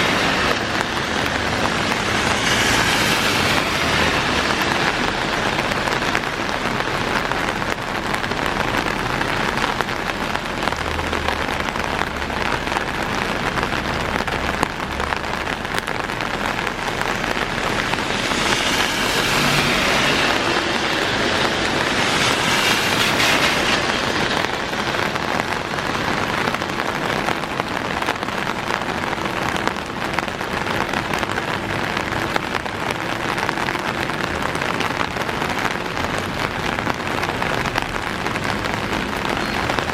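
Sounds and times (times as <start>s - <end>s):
car tyres hissing on wet road: 0.0s - 39.9s
heavy rain pouring: 0.0s - 39.9s.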